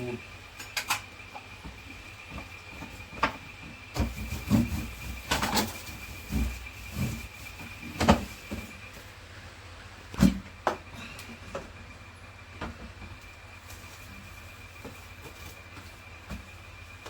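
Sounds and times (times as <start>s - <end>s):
faint steady high tone: 0.0s - 9.6s.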